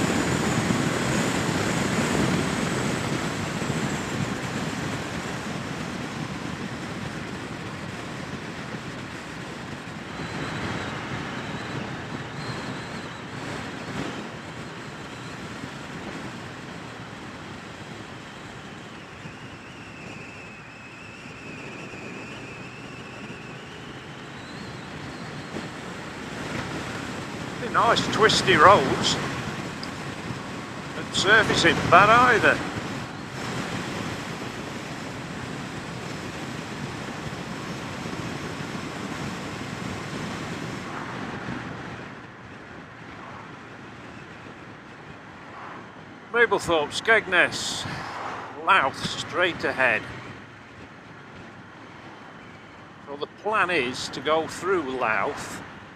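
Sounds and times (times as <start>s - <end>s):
wind and road noise: 0.0s - 55.9s
faint high whine: 27.6s - 34.4s.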